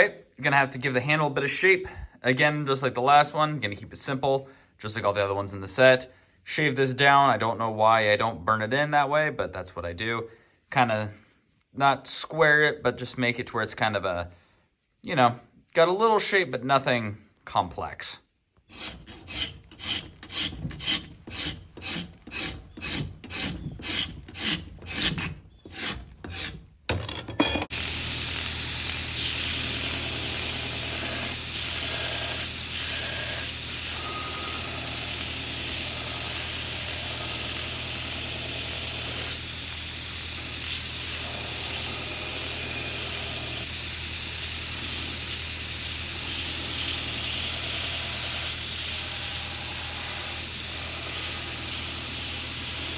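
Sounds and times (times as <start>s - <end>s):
rasp filing wood: 18.7s - 26.8s, 28.5s - 43.8s, 44.4s - 52.9s.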